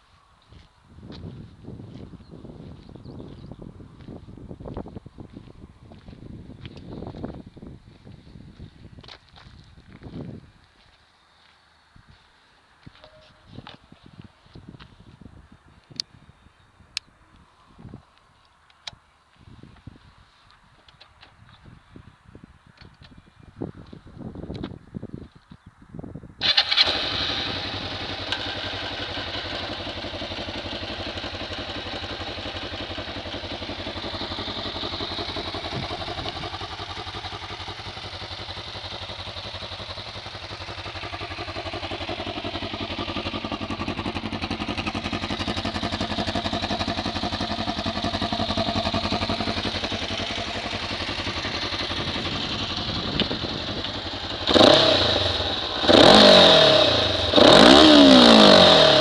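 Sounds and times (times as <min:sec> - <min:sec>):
motorcycle engine starting and idling: 0:26.4 - 0:59.0.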